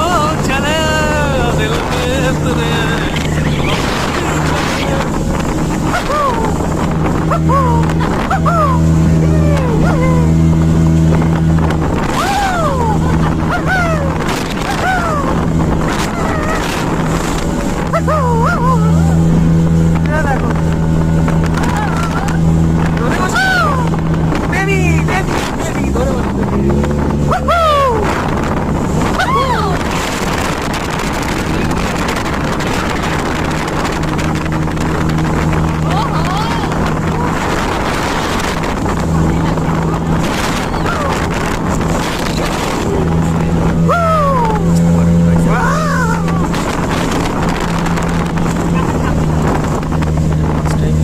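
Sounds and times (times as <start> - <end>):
motorboat engine droning: 0.0 - 51.0
water rushing past hull: 0.0 - 51.0
wind on microphone: 0.0 - 51.0
people whooping: 12.1 - 14.1, 29.2 - 29.8, 43.9 - 44.6.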